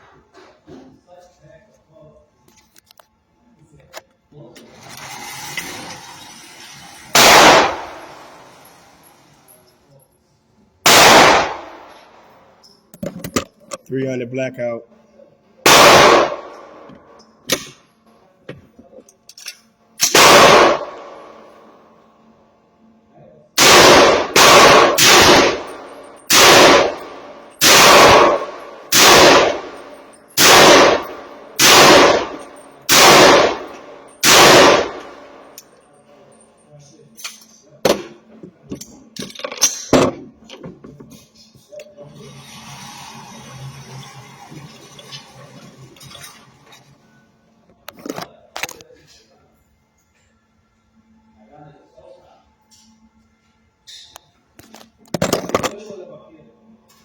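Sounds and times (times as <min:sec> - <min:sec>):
rifle shots: 0:07.1 - 0:08.3, 0:10.8 - 0:12.2, 0:15.7 - 0:16.9, 0:20.0 - 0:21.4, 0:23.6 - 0:35.5
gunshots with echoing tail: 0:07.2 - 0:08.2, 0:10.9 - 0:11.9, 0:15.7 - 0:16.9, 0:20.1 - 0:21.4, 0:23.6 - 0:35.5.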